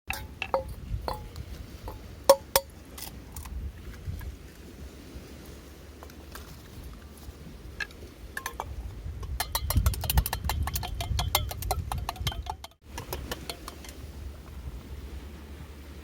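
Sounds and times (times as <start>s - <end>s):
metallic clinking: 7.8s - 14.0s.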